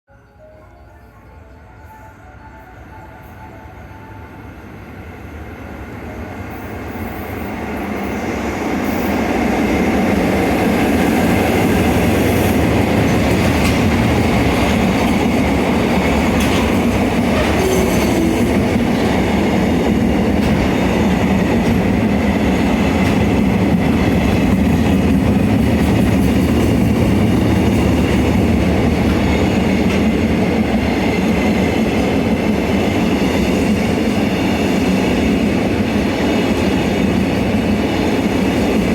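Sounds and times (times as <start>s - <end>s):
freight train rumble: 0.3s - 38.9s
train wheels clicking: 8.8s - 38.9s.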